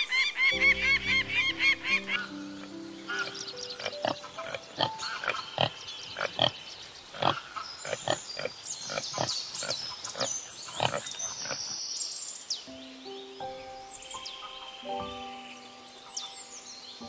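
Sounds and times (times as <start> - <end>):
birds whistling: 0.0 - 17.0
deer grunting calls: 1.7 - 11.7.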